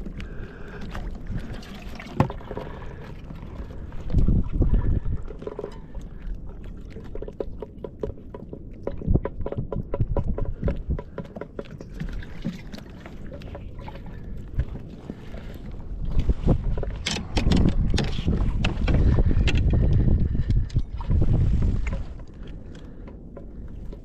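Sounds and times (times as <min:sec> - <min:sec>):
low wind rumble: 0:00.0 - 0:24.0
small clicks and knocks: 0:16.8 - 0:20.8.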